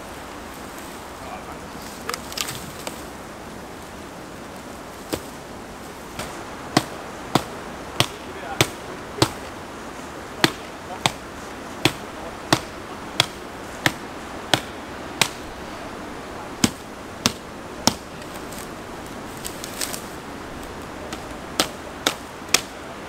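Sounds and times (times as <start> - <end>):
hand tool striking ground: 10.4 - 11.2, 11.8 - 15.4, 20.8 - 22.8.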